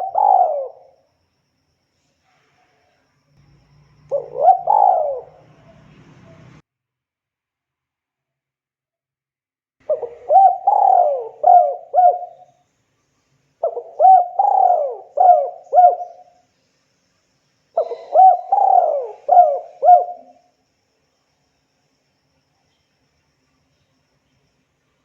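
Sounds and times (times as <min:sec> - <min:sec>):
dove cooing: 0:00.0 - 0:01.0, 0:04.1 - 0:06.6, 0:09.8 - 0:12.5, 0:13.6 - 0:16.4, 0:17.8 - 0:20.5.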